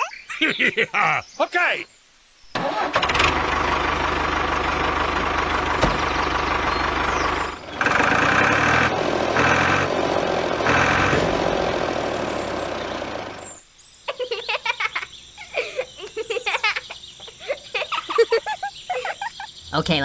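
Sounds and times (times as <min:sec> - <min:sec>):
engine running: 0:02.6 - 0:13.6.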